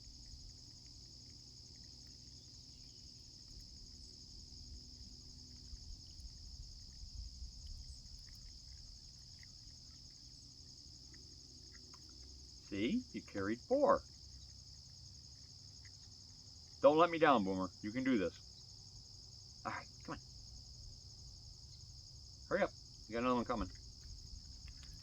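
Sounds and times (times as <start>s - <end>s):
high-pitched insect chorus: 0.0s - 25.0s
faint light ticks: 23.7s - 25.0s.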